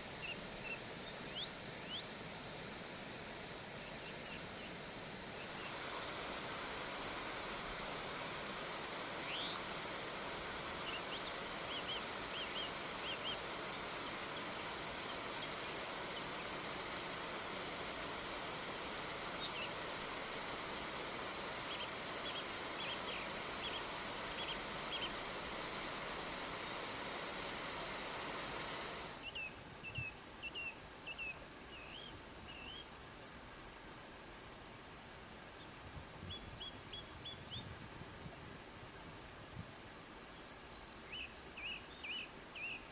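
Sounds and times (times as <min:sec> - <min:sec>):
flowing water rushing: 0:00.0 - 0:31.7
small birds chirping: 0:00.0 - 0:32.9.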